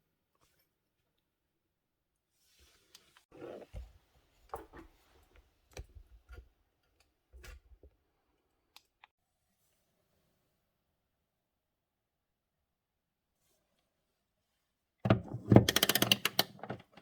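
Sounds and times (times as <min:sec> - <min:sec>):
tools and metal parts clicking: 0:15.5 - 0:16.9.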